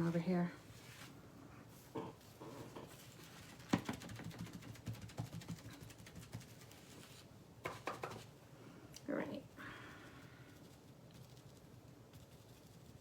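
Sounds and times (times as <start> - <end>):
hands tapping and rustling: 2.8 - 7.0, 7.6 - 8.3.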